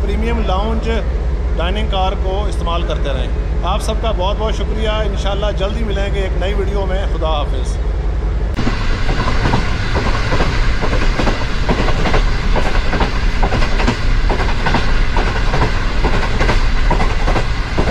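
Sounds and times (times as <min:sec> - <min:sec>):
low steady rumble: 0:00.0 - 0:17.9
train wheels clattering on track: 0:08.5 - 0:17.9.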